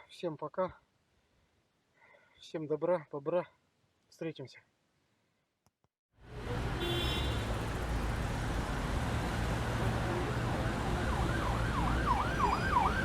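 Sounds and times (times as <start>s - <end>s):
siren yelping: 10.2s - 13.0s.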